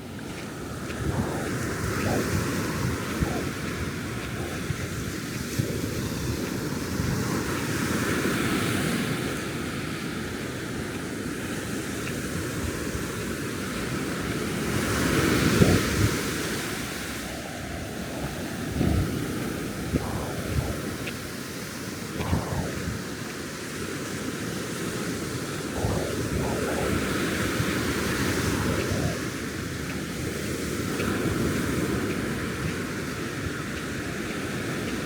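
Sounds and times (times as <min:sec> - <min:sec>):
wind buffeting microphone: 0:00.0 - 0:09.4, 0:12.6 - 0:24.2, 0:25.4 - 0:35.0
ocean surf breaking on beach: 0:25.4 - 0:35.0.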